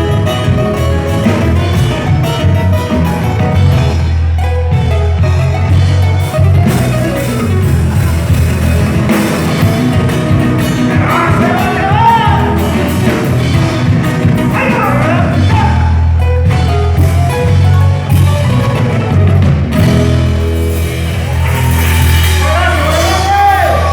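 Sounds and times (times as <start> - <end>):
folk group playing dance song: 0.0 - 23.9
steady bass line: 0.0 - 23.9
person singing: 10.8 - 12.8.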